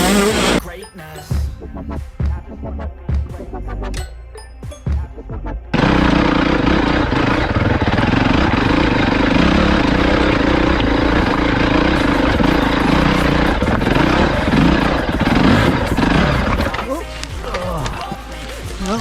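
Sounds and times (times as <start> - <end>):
off-road vehicle engine at high revs: 0.0 - 0.6, 5.7 - 19.0.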